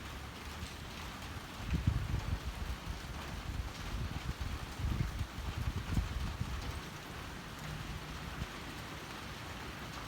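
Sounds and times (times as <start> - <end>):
rain falling: 0.0 - 10.0
wind buffeting microphone: 1.7 - 6.8.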